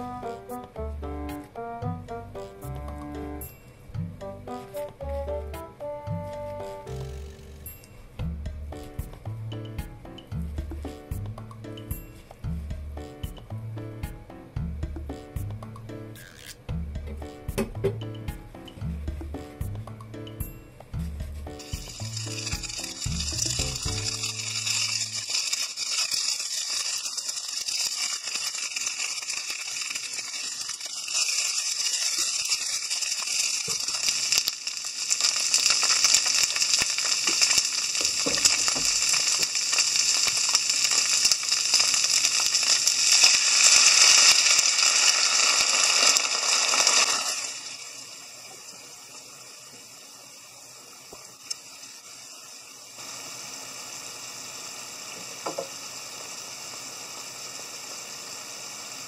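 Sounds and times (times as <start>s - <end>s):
food sizzling in frying pan: 0.0s - 14.2s, 17.2s - 59.0s
faint simmer: 17.7s - 59.0s.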